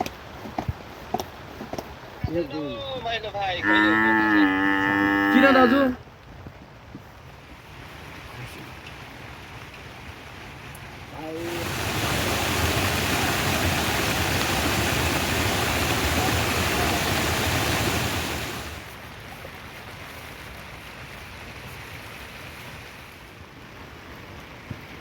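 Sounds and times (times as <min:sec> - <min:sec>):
soft rain patter: 0:00.0 - 0:25.0
rain rushing hiss: 0:05.6 - 0:25.0.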